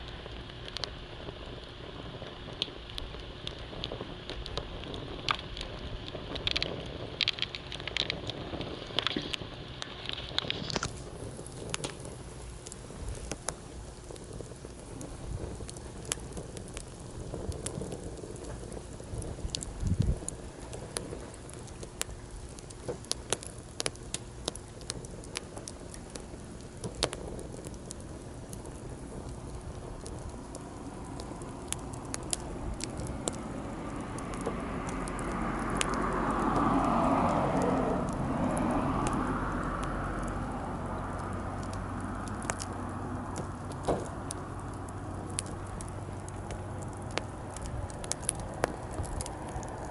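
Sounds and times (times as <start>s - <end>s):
campfire crackling and popping: 0.0s - 49.9s
passing vehicle: 32.8s - 49.9s.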